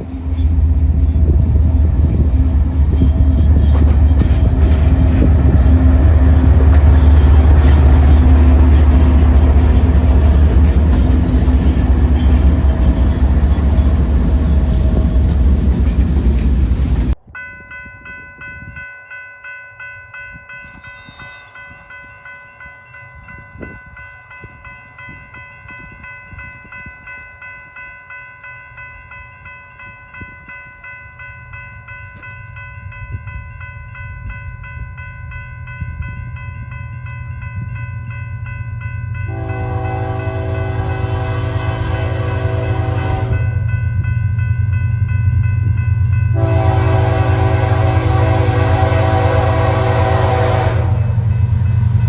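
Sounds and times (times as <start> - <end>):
approaching train rumble: 0.0 - 18.8, 28.7 - 52.0
crossing warning bell ringing: 2.0 - 52.0
locomotive horn chord: 39.3 - 43.6, 46.3 - 51.2.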